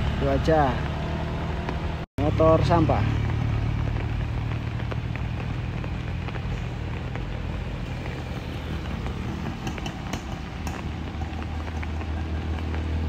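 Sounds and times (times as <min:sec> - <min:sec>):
vehicle engines droning uphill: 0:00.0 - 0:13.0.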